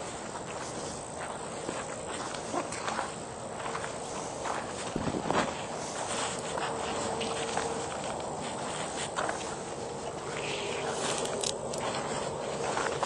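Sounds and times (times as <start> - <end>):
footsteps on dirt trail: 0.0 - 13.0
faint held tone: 10.0 - 12.2.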